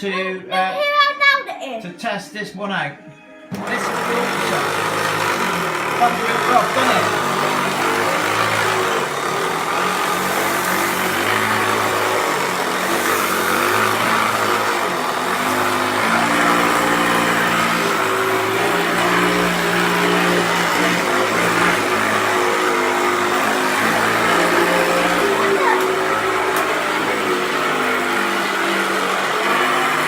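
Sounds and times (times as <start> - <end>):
upright vacuum cleaner running rough: 3.5 - 30.0.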